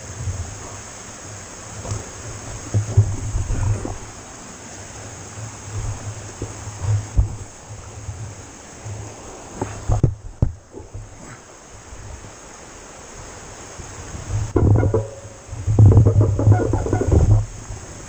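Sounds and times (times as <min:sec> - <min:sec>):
steady hiss: 0:00.0 - 0:18.0
wind buffeting microphone: 0:00.0 - 0:18.0
bike knocks and rattles: 0:01.7 - 0:04.2, 0:05.7 - 0:07.6, 0:09.6 - 0:11.4, 0:14.3 - 0:18.0.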